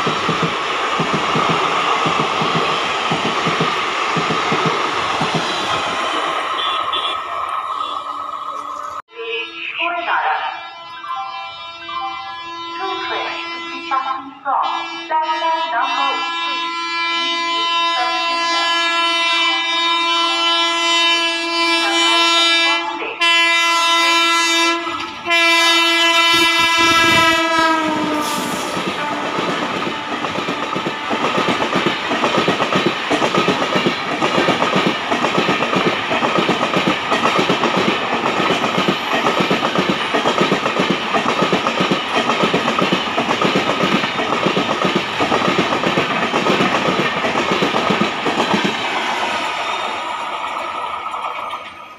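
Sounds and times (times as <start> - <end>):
train wheels clattering over rail joints: 0.0 - 6.2, 28.4 - 51.9
locomotive air horn blast: 6.5 - 8.2, 10.6 - 30.3.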